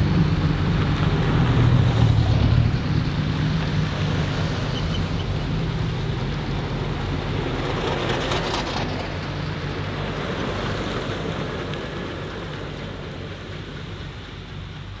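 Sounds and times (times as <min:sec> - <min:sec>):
racing car engine driving away: 0:00.0 - 0:14.8.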